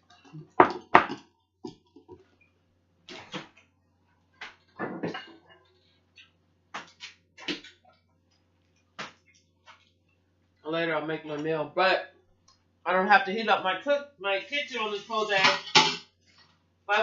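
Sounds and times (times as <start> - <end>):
kitchen knocks and clatters: 0.0 - 2.3, 4.4 - 5.8, 15.2 - 16.2.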